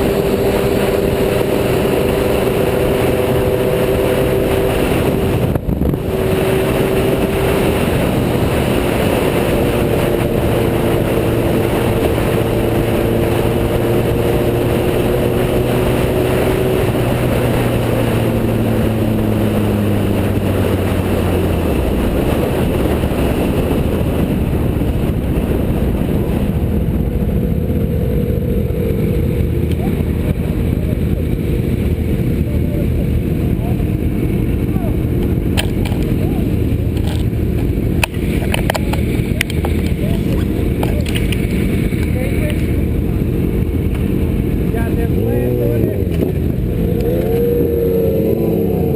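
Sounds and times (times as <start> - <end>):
motorcycle engine running: 0.0 - 48.9
wind and road noise: 0.0 - 48.9.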